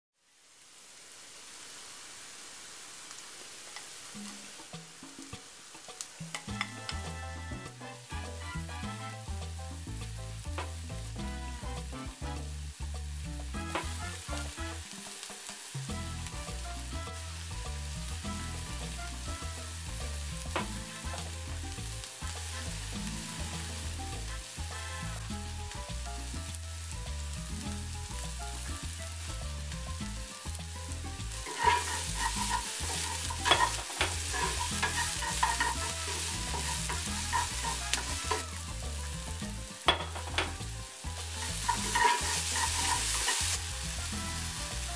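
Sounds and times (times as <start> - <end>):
onions sizzling in hot oil: 0.2 - 44.9
spatula clacking against pan: 31.4 - 38.4, 39.8 - 40.6, 41.2 - 43.6.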